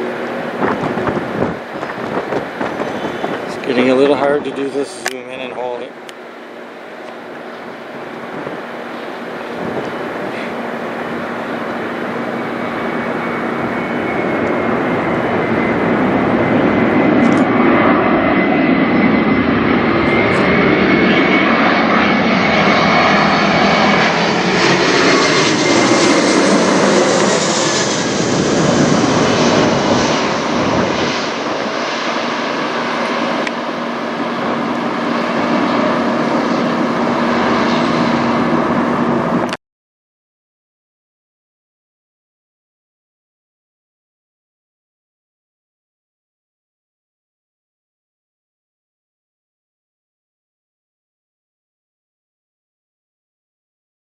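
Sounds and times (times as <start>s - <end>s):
jet airliner flying overhead: 0.0s - 39.6s.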